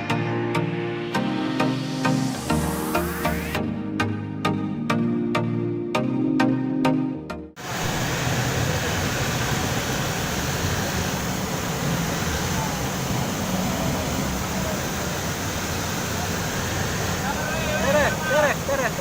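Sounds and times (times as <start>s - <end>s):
river water rushing: 7.6s - 19.0s
truck engines running low: 7.6s - 19.0s.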